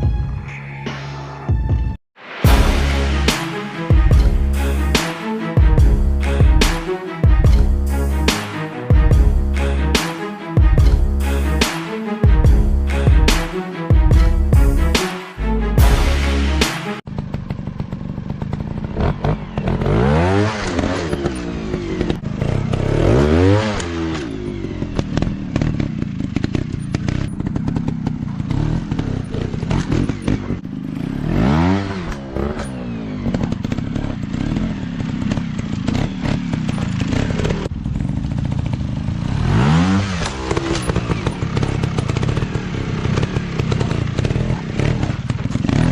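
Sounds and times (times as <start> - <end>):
dirt bike engines revving: 17.1 - 45.9.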